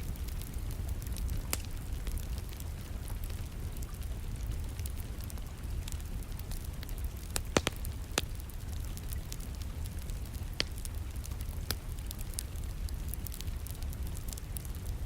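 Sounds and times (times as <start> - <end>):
light patter of rain: 0.0 - 15.0
wood fire crackling and popping: 0.0 - 15.0.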